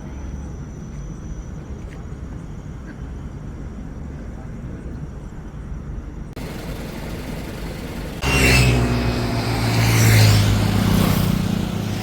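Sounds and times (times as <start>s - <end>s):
diesel engine running: 6.4s - 12.0s.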